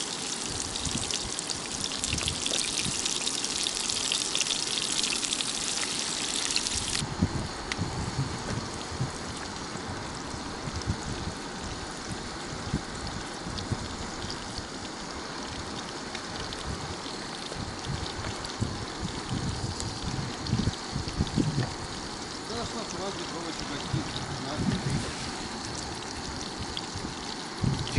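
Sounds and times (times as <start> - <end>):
fish sizzling in a pan: 0.0 - 7.0.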